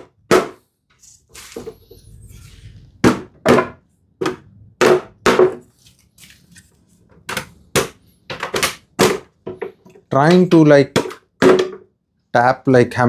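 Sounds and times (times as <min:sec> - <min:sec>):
hammer knocking on wood: 0:03.0 - 0:05.6.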